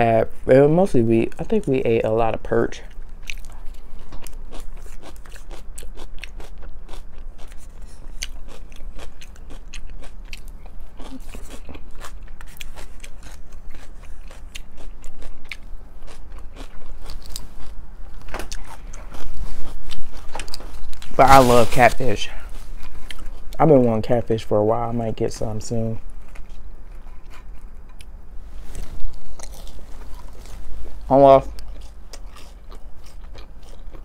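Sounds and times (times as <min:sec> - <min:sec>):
chewing with crisp crunches: 0:02.7 - 0:24.0, 0:26.0 - 0:34.0.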